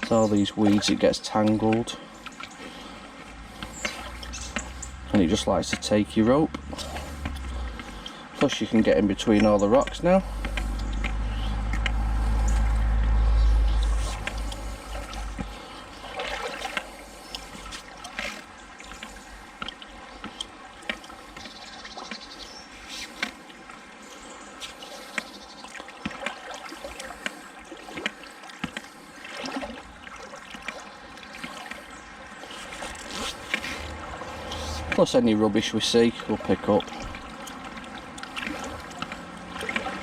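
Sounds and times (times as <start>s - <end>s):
river water splashing: 0.0s - 40.0s
heavy low rumble: 3.3s - 16.2s.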